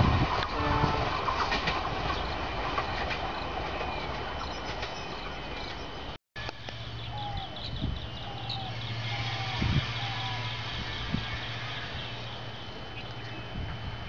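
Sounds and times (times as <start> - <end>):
train wheels on track: 0.0 - 14.0.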